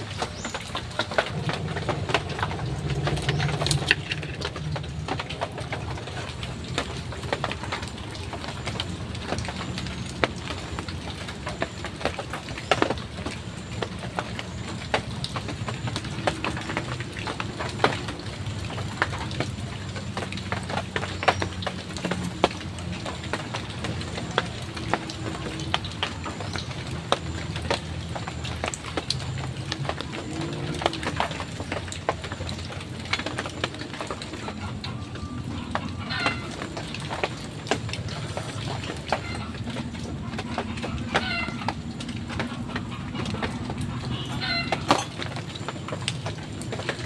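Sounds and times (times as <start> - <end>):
heavy rain falling: 0.0 - 47.0
rain drop ticks: 0.0 - 47.0.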